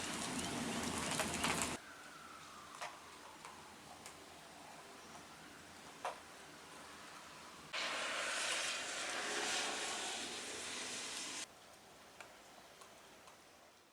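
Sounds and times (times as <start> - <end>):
heavy rain hissing: 7.7 - 11.5.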